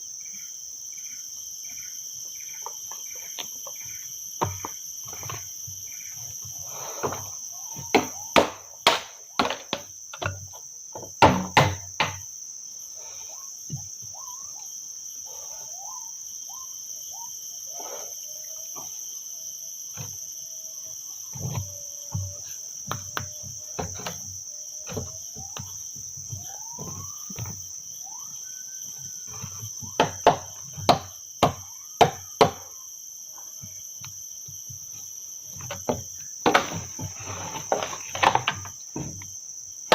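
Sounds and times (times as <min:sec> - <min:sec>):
insect chorus drone: 0:00.0 - 0:39.9
loud sharp knocks: 0:07.8 - 0:09.9, 0:11.2 - 0:12.2.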